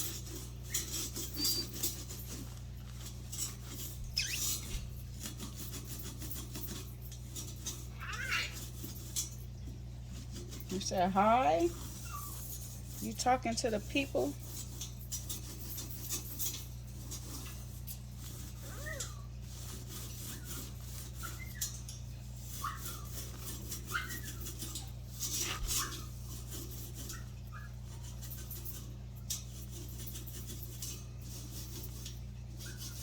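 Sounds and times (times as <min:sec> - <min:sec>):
parrot chirping and squeaking: 0:00.0 - 0:09.3, 0:10.9 - 0:12.9, 0:14.5 - 0:28.7.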